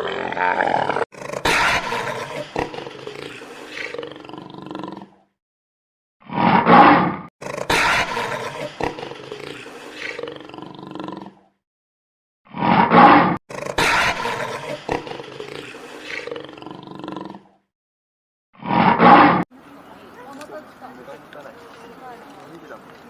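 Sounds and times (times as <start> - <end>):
loud animal calls: 0.0 - 4.5, 6.3 - 10.6, 12.6 - 17.3.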